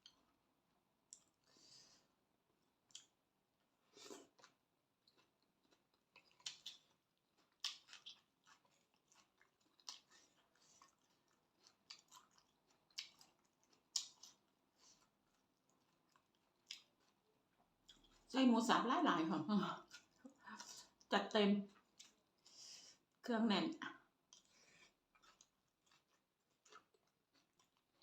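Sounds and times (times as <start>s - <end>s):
person chewing crunchy food: 2.5s - 18.3s, 19.8s - 21.1s, 21.8s - 23.2s, 24.2s - 28.0s.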